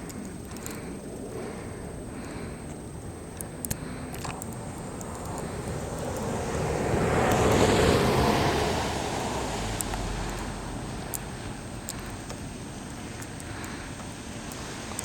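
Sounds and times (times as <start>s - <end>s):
sharp clicks: 0.0s - 0.9s, 3.3s - 6.3s, 9.8s - 15.0s
car driving past: 5.2s - 12.7s.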